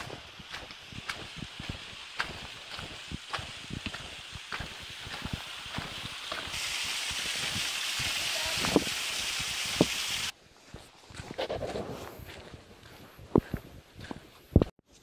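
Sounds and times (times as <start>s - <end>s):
wind and rain hiss: 0.0s - 10.4s
footsteps on stony path: 0.0s - 15.0s.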